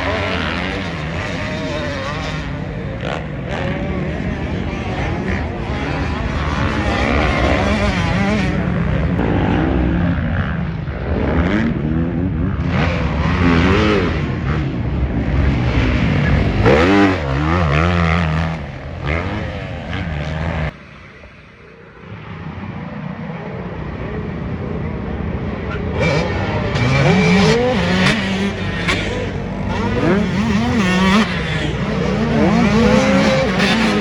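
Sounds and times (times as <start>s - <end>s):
motocross engines revving: 0.0s - 10.4s, 11.2s - 20.8s, 25.9s - 34.0s.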